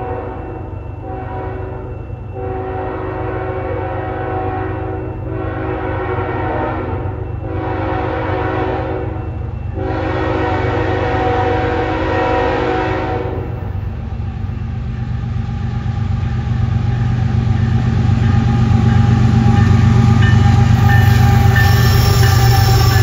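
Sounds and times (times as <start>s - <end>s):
locomotive horn chord: 0.0s - 9.2s, 9.8s - 13.8s, 19.6s - 23.0s
locomotive engines rumbling: 0.0s - 23.0s.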